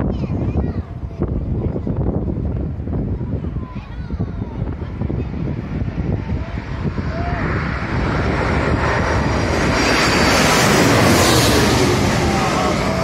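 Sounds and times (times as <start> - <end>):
jet airliner engines roaring: 0.0 - 13.0
wind buffeting microphone: 0.0 - 13.0.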